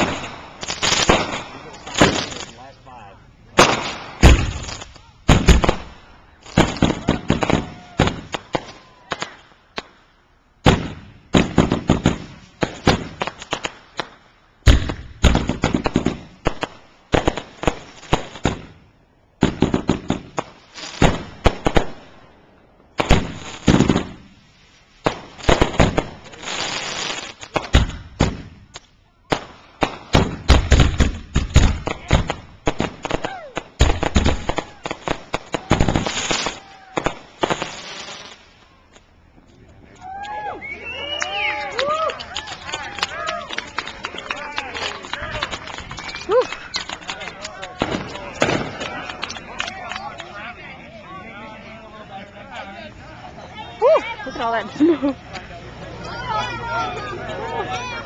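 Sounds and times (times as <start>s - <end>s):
fireworks bangs and booms: 0.0s - 2.7s, 3.5s - 10.0s, 10.6s - 39.5s, 43.5s - 50.0s
fireworks crackling: 0.0s - 58.0s.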